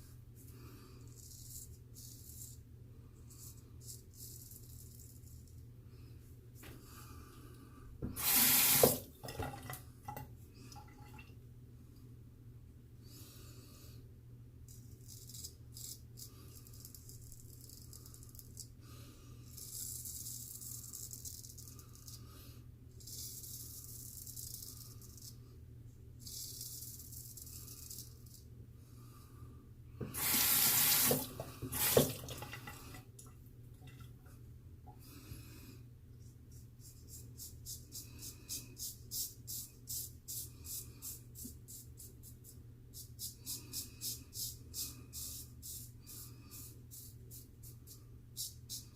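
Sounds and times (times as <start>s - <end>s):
sink tap running: 8.1s - 9.6s, 30.0s - 32.8s.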